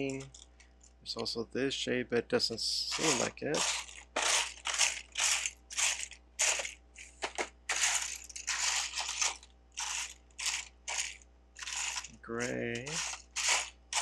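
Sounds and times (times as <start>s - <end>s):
plastic bricks clattering: 2.9s - 14.0s.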